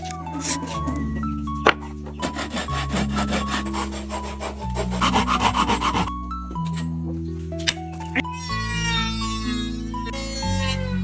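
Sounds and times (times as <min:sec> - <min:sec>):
background music: 0:00.0 - 0:11.0
hand saw cutting wood: 0:01.7 - 0:06.1.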